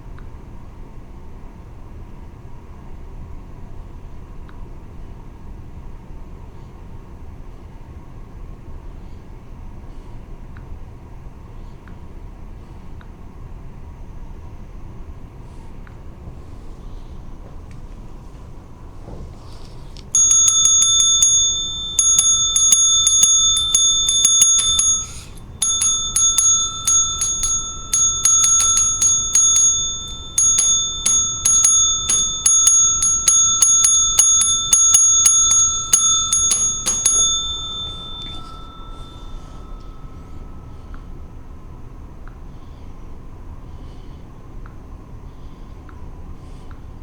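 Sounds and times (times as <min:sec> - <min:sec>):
small metal bell struck rapidly: 0:20.2 - 0:41.2.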